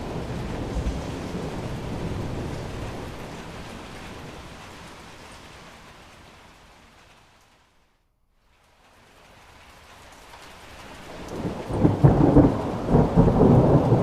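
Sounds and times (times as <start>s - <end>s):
thunder rumbling: 0.0s - 6.0s, 11.1s - 14.0s
steady rain: 0.0s - 14.0s.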